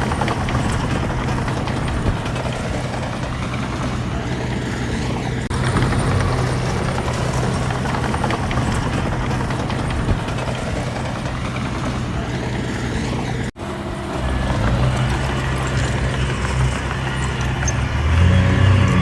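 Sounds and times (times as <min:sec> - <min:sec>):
heavy machinery diesel engine: 0:00.0 - 0:19.0.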